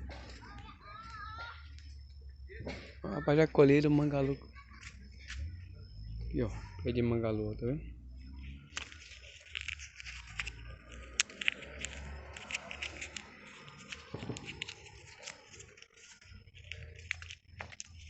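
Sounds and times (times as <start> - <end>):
dry plant stalks crackling: 8.4 - 18.0.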